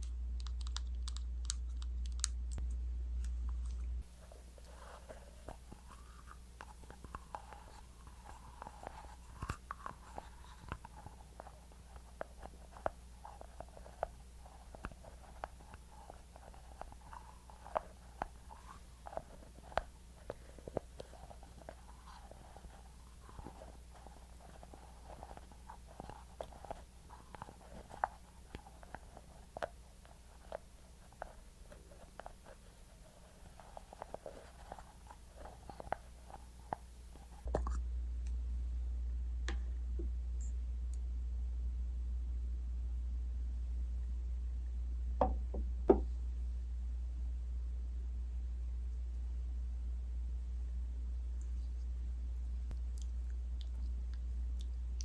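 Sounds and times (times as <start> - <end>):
sticky product wet clicks: 0.0 - 3.9
steady low hum: 0.0 - 55.0.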